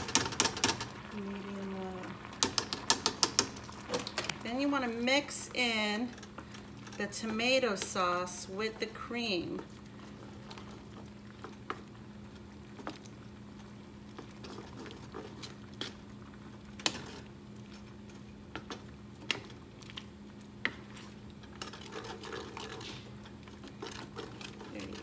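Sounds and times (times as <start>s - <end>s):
spatula tapping pan: 2.4s - 3.6s
spatula stirring thick sauce: 8.8s - 16.2s, 16.8s - 25.0s.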